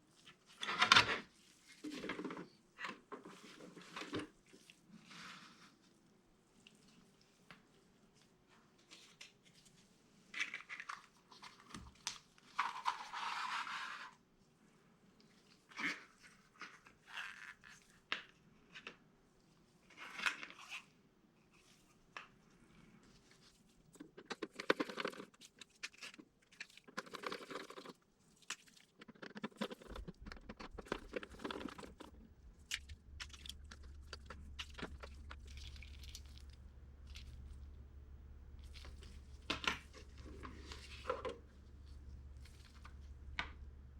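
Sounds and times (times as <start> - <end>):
plastic parts clicking and scraping: 0.6 - 4.4, 23.9 - 37.9, 38.5 - 43.7
tearing crunching noise: 29.0 - 43.4
low steady hum: 29.5 - 43.9.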